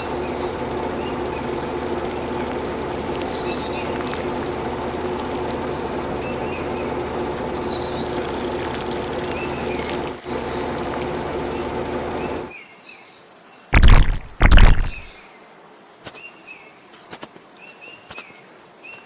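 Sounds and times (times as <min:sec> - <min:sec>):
birds chirping: 0:00.0 - 0:10.9, 0:13.8 - 0:15.1
steady mechanical hum: 0:00.0 - 0:12.5.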